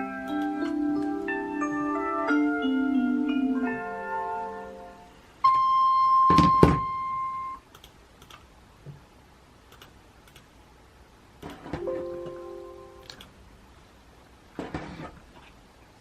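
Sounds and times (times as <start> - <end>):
music: 0.0 - 7.4, 11.8 - 13.1
steady electronic beep: 5.4 - 7.6.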